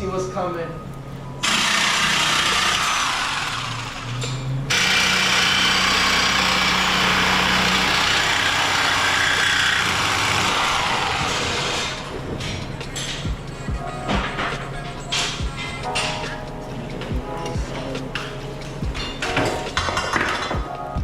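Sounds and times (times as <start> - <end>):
power tool cutting steel pipe: 1.4 - 12.1.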